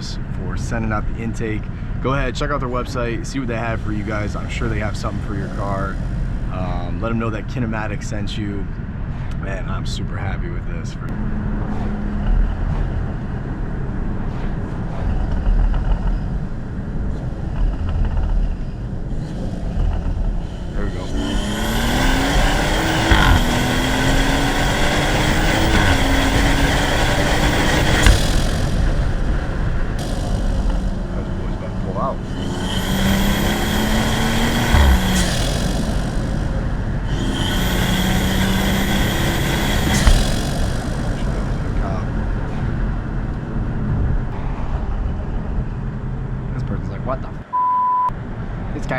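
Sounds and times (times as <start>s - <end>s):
car engine rumble: 0.0s - 47.3s
high intake whistle: 19.2s - 42.9s
short low thump: 19.8s - 43.0s.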